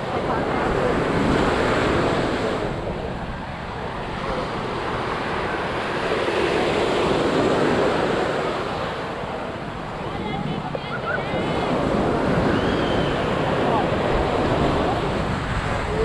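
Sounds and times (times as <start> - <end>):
ocean surf washing ashore: 0.0 - 16.0
wind buffeting microphone: 0.0 - 16.0.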